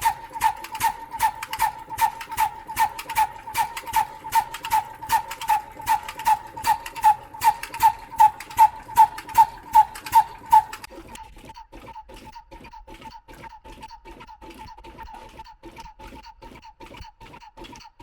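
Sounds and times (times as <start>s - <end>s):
diesel engine metallic clacking: 0.0s - 10.9s.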